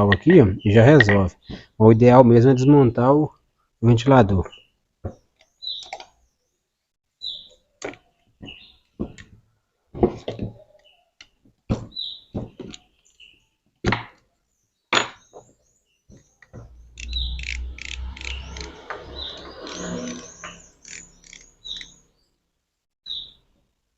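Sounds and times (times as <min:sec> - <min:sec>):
small bird chirping: 0:04.5 - 0:08.9, 0:14.5 - 0:22.4, 0:23.0 - 0:23.4
wrench and metal parts clicking: 0:16.9 - 0:18.7.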